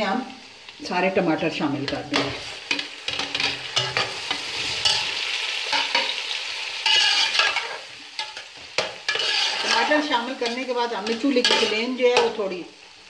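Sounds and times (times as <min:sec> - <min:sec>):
tomatoes sizzling in hot oil: 0:00.0 - 0:13.0
spatula scraping and stirring: 0:01.8 - 0:06.2, 0:06.8 - 0:12.3.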